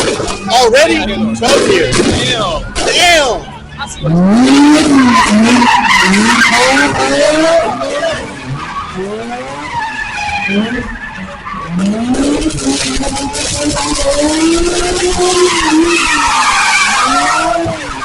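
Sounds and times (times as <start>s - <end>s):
car engine revving: 0.0s - 18.0s
tyres screeching: 0.3s - 12.1s.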